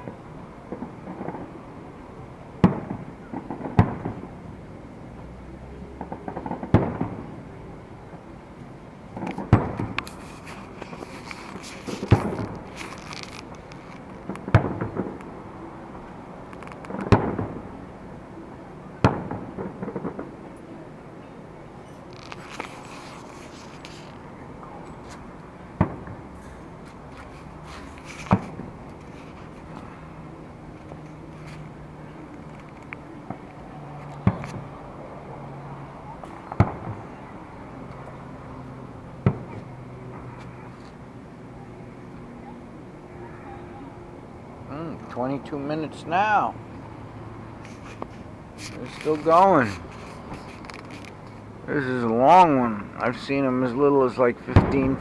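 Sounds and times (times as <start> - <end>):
firework shells bursting: 9.1 - 15.4, 16.5 - 17.7, 25.8 - 29.9.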